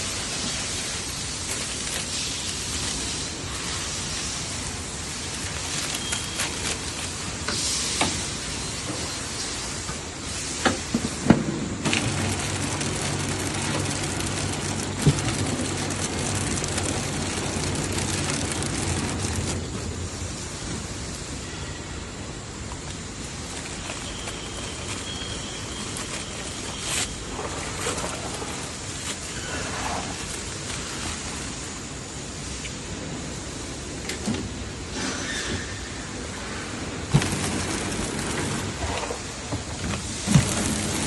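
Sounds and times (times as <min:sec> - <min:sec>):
workshop machine noise: 0:00.0 - 0:41.0
low motor hum: 0:11.9 - 0:20.2.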